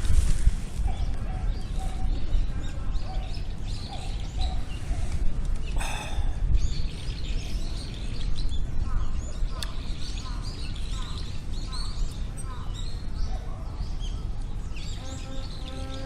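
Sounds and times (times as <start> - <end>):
small birds chirping: 0.7 - 16.0.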